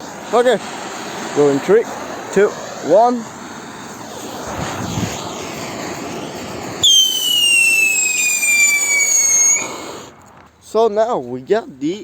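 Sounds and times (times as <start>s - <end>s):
firework hissing: 0.0s - 10.7s
firework shrill whistle: 3.5s - 10.2s.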